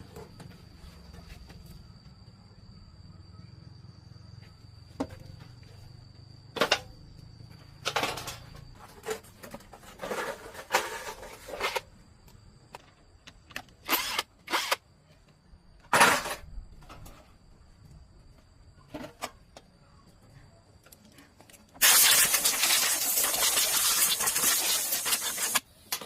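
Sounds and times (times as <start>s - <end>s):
metal parts and tools clattering: 7.8s - 12.0s.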